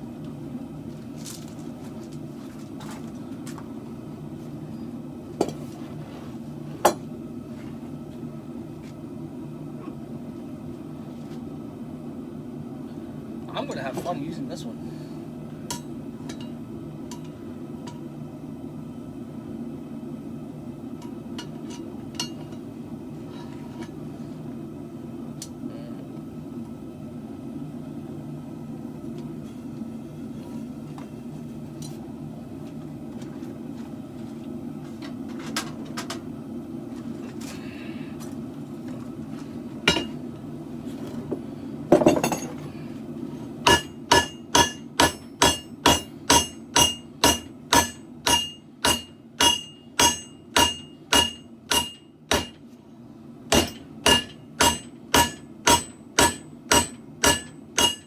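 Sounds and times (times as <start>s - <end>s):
hammer striking steel on anvil: 15.7s - 18.1s, 39.9s - 40.2s, 43.6s - 52.6s, 53.5s - 58.0s.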